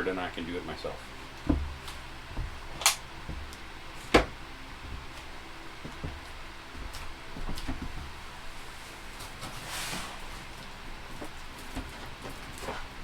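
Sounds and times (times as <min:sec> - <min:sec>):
light taps and bumps: 0:01.4 - 0:08.2
microwave knocking and clunking: 0:01.4 - 0:08.2.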